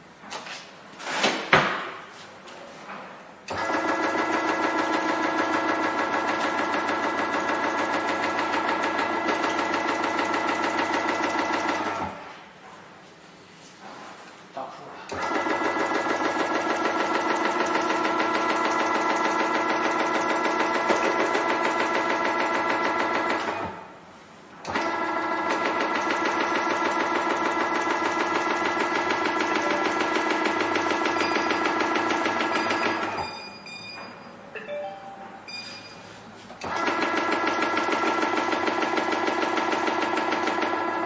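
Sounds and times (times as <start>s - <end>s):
short high beeps: 32.5s - 36.2s.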